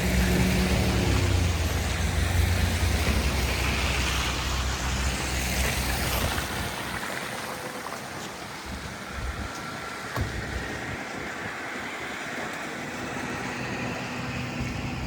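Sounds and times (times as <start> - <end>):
street noise: 0.0 - 15.0
vehicle engine rumbling: 0.0 - 15.0.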